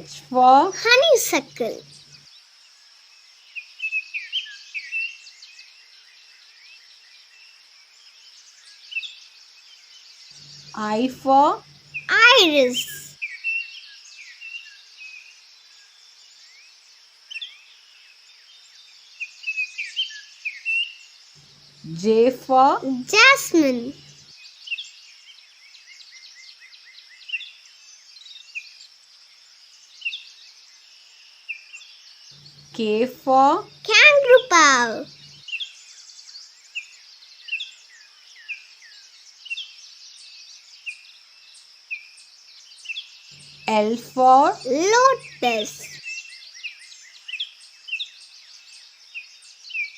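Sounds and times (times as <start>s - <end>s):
birds chirping: 0.0s - 2.2s, 10.4s - 13.1s, 21.4s - 24.2s, 32.4s - 35.5s, 43.4s - 46.0s
small birds chirping: 0.0s - 49.9s.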